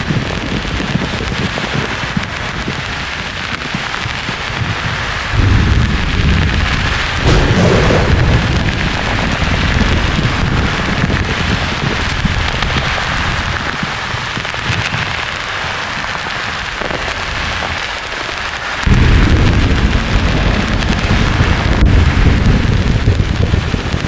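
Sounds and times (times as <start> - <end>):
rolling thunder: 4.8 - 13.6, 18.8 - 24.0.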